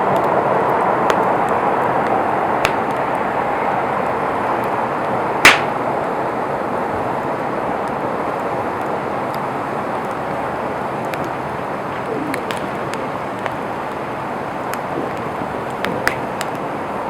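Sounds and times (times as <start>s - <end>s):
campfire flames hissing: 0.0s - 17.0s
wood crackling: 0.0s - 17.0s
sharp pop from burning wood: 2.6s - 3.1s, 5.4s - 5.8s, 14.7s - 16.6s.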